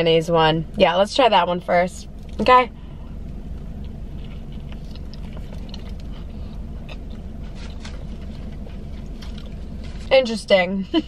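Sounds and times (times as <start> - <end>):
steady low hum: 0.0 - 11.0
person chewing: 3.6 - 10.1.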